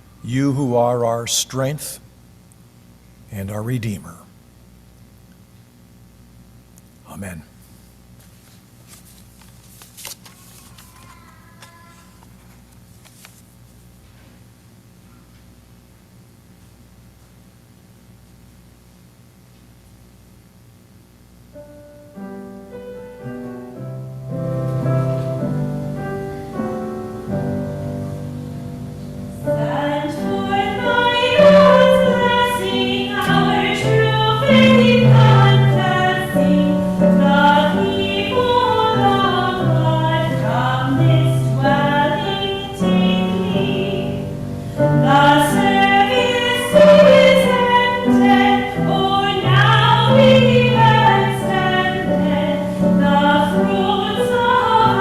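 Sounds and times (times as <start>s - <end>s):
keyboard chords: 21.6s - 55.0s
group singing a hymn: 25.0s - 55.0s.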